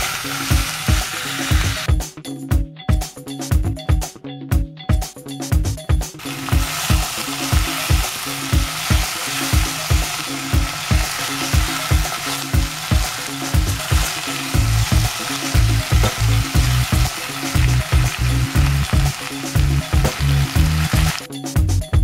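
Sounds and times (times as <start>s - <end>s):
food sizzling in a pot: 0.0s - 1.9s, 6.2s - 21.3s
background music beat: 0.0s - 22.0s.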